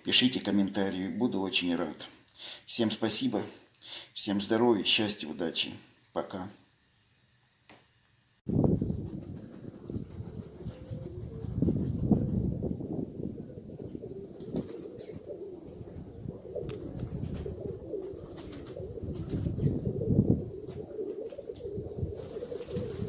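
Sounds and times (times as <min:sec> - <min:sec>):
pigeons cooing: 0:10.0 - 0:23.0.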